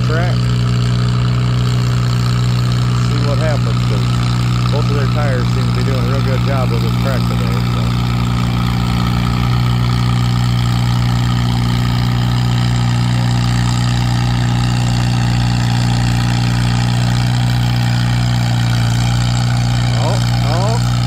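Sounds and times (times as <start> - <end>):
tractor engine droning: 0.0 - 21.0.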